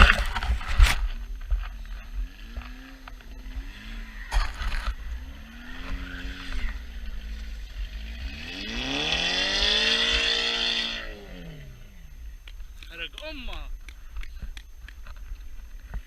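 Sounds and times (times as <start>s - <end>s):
tyres spinning in snow: 0.0s - 10.9s
car engine revving: 2.0s - 12.4s.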